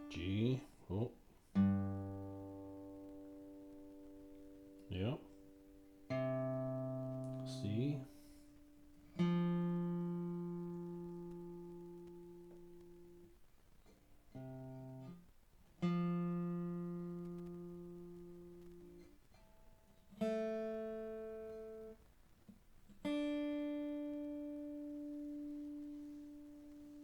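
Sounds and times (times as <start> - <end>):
acoustic guitar strings plucked: 0.0 - 13.3, 15.8 - 19.2.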